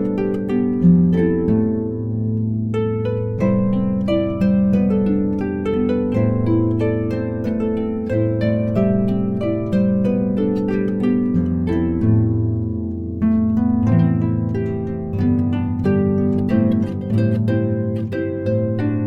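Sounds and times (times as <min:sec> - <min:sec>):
harp music: 0:00.0 - 0:19.0.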